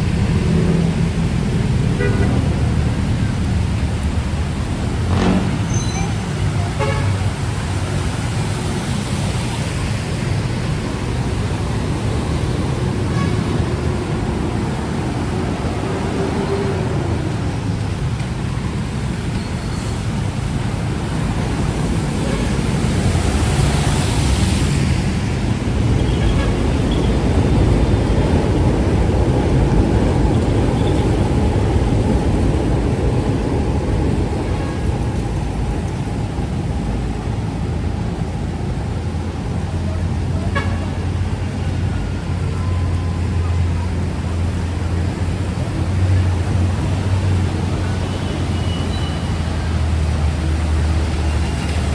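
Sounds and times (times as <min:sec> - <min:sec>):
vehicle engines passing: 0:00.0 - 0:51.9
car horns: 0:01.8 - 0:02.8, 0:05.1 - 0:07.6, 0:13.0 - 0:14.0, 0:40.3 - 0:43.2.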